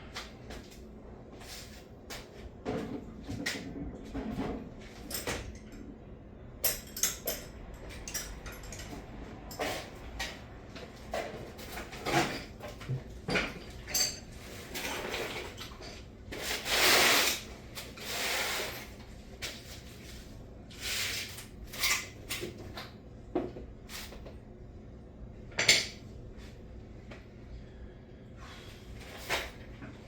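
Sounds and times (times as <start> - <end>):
tools clinking and clattering: 4.9 - 5.9, 6.6 - 10.4, 11.1 - 16.1.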